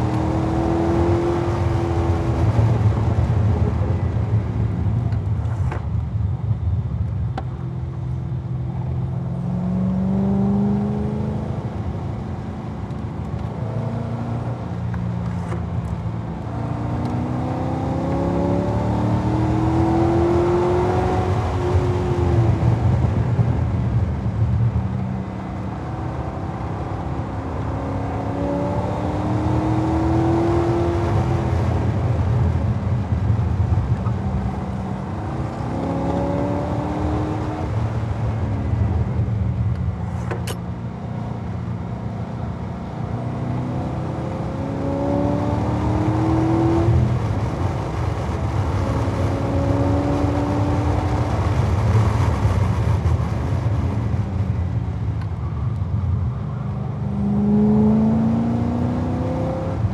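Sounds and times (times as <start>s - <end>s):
wind and road rush: 0.0s - 59.9s
car engine accelerating hard: 12.7s - 40.5s, 42.5s - 56.2s, 57.0s - 59.9s.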